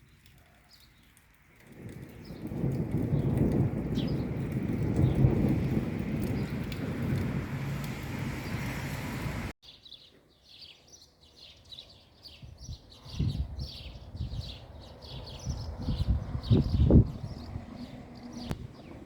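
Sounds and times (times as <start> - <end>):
heavy downpour: 0.0 - 9.5
thunder rumble: 1.6 - 9.5, 15.2 - 19.0
bird chirping: 9.6 - 19.0.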